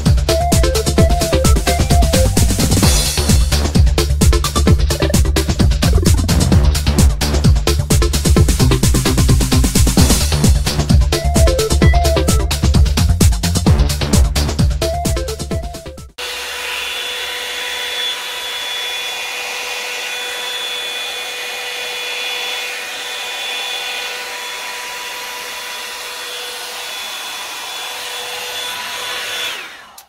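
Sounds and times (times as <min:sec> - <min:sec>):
hair dryer running: 0:16.2 - 0:30.0.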